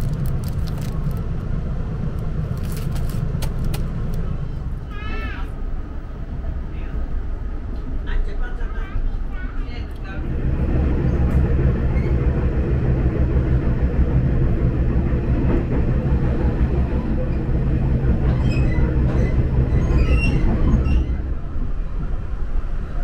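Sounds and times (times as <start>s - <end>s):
train rumbling inside carriage: 0.0s - 23.0s.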